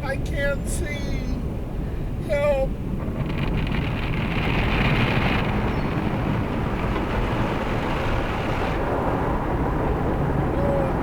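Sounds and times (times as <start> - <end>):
car wash brushes and water spray: 3.6 - 9.1.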